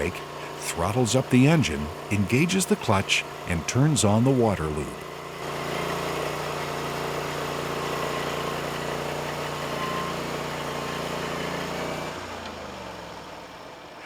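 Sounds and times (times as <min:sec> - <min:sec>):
sawmill engine running: 0:00.0 - 0:14.0.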